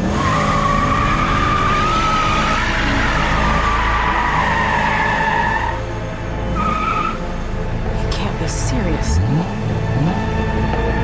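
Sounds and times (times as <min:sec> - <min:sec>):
fire truck siren wailing: 0:00.0 - 0:07.6
vehicle engine rumble: 0:05.7 - 0:11.0.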